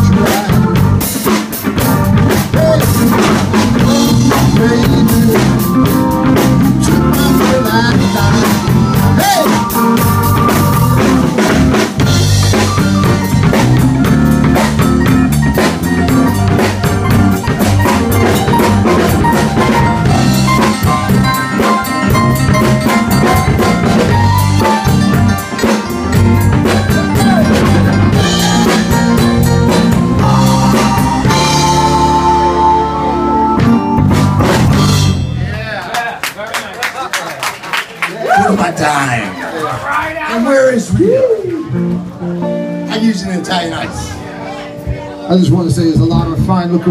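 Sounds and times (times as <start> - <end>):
walking bass line: 0.0 - 35.6
blues band playing: 0.0 - 36.4, 37.3 - 46.9.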